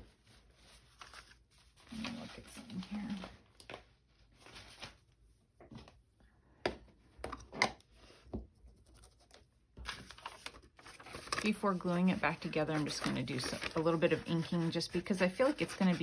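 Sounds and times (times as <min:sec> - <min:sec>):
paper rustling and scraping: 0:00.0 - 0:05.2, 0:08.8 - 0:16.0.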